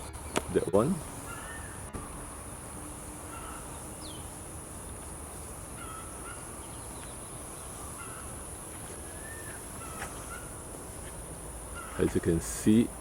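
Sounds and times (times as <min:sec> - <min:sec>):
outdoor hiss: 0:00.0 - 0:13.0
birds chirping and whistling: 0:09.0 - 0:10.6.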